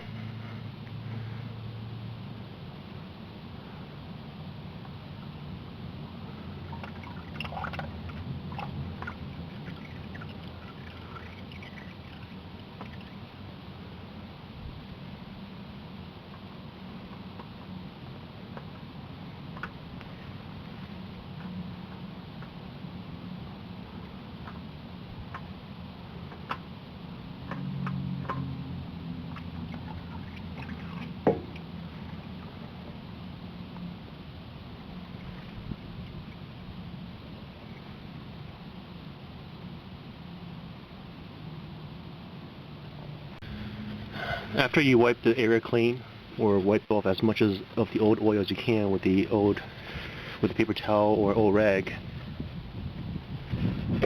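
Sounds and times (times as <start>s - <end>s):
steady low hum: 0.0s - 54.0s
oil dripping into bucket: 6.3s - 14.3s, 27.4s - 32.6s
oil filter being unscrewed: 6.6s - 13.2s, 29.3s - 32.6s.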